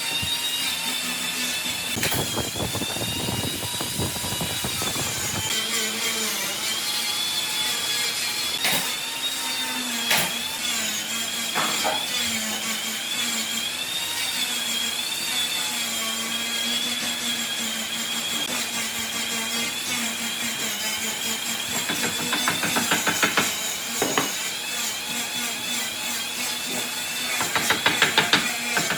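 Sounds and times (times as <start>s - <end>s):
electric power tool motor: 0.0s - 28.9s.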